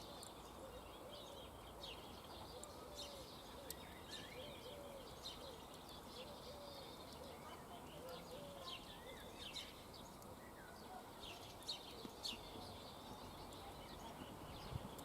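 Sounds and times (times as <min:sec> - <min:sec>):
birds chirping faintly: 0:00.0 - 0:15.0.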